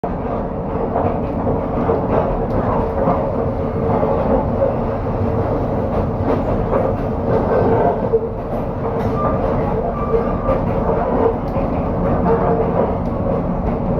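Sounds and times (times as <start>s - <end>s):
train rumbling on rails: 0.0s - 13.9s
knocks from train wheels: 5.2s - 13.9s.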